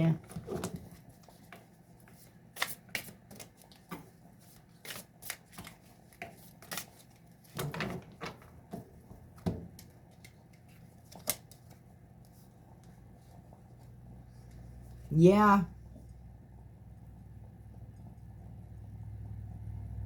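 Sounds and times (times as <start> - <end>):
cards being shuffled: 0.2 - 7.7, 9.7 - 12.5.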